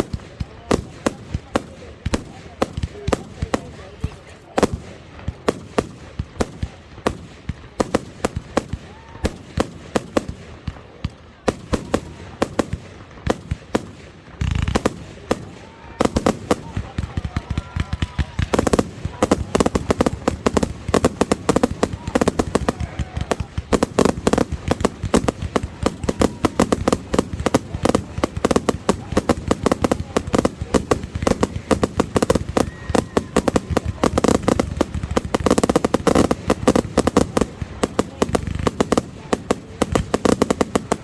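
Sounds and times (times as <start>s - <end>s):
fireworks bangs and crackles: 0.0s - 41.0s
people's voices: 0.0s - 41.0s.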